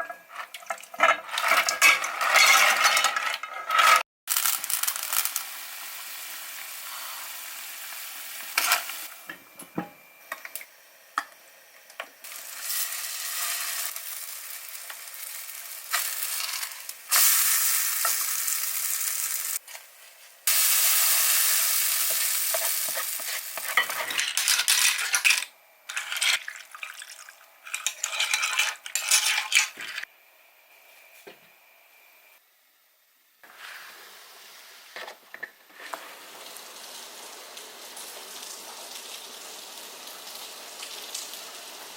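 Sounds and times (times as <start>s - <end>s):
food sizzling in a pan: 4.3s - 9.3s, 10.3s - 30.1s, 33.4s - 41.9s
utensil clicking and scraping pan: 22.1s - 26.6s, 27.7s - 30.1s.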